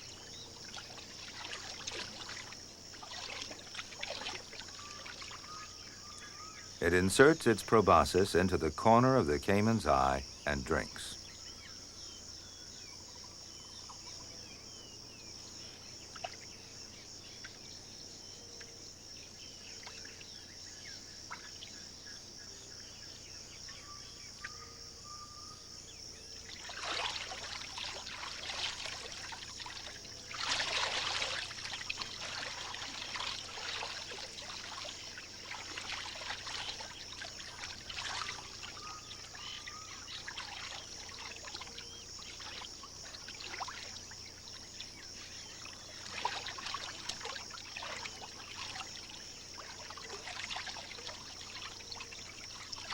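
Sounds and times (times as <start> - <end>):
water splashing: 0.0 - 5.5, 26.5 - 44.7, 45.5 - 52.9
insect chorus: 0.0 - 52.9
faint bird calls: 36.2 - 42.7.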